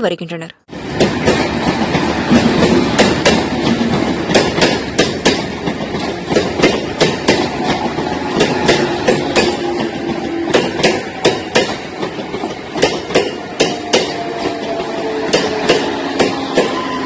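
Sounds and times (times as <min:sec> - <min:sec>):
electric train rumbling: 0:00.7 - 0:17.0
sharp hard knocks: 0:02.3 - 0:05.5.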